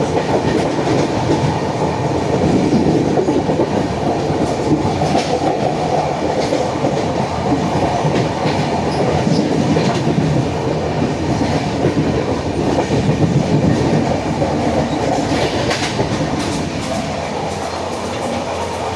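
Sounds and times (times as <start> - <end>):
train rumbling on track: 0.0 - 18.9
train wheel clicks: 0.0 - 18.9.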